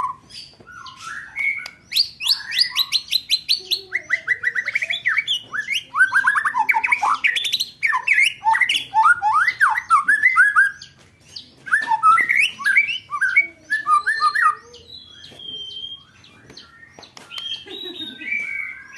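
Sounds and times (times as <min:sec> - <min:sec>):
high bird whistle: 0:00.0 - 0:03.6, 0:11.7 - 0:18.9.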